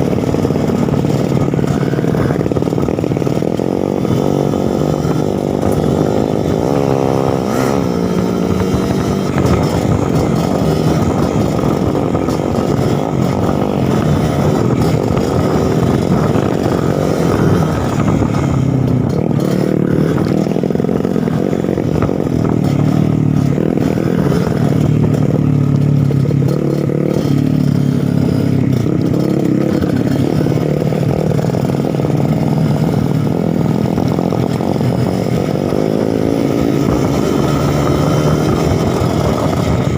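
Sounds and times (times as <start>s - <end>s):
two-stroke motorbike engine: 0.0s - 39.9s.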